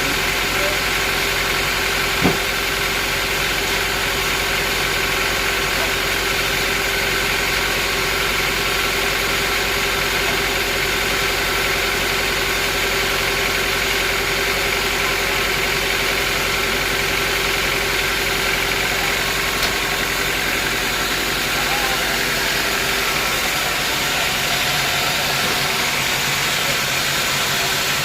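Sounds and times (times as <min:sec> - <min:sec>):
sawmill machinery humming: 0:00.0 - 0:28.0.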